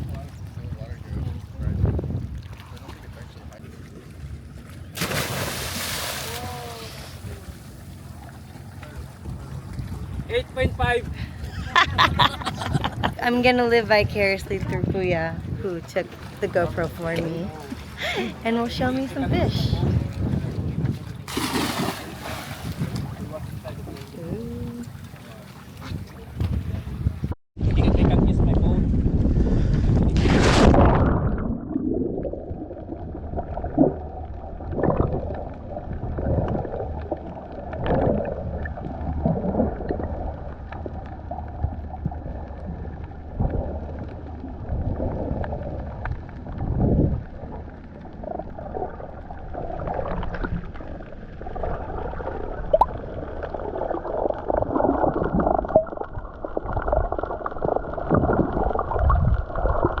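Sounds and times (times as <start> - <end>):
underwater gurgling and bubbling: 29.2 - 60.0.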